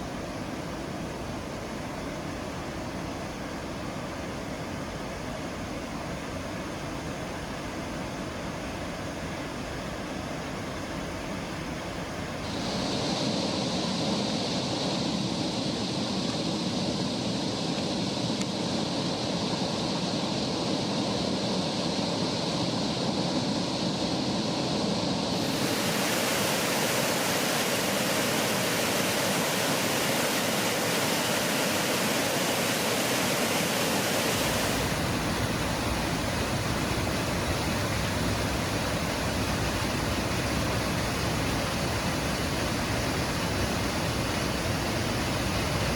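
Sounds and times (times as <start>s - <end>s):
waterfall rushing: 25.4s - 45.9s.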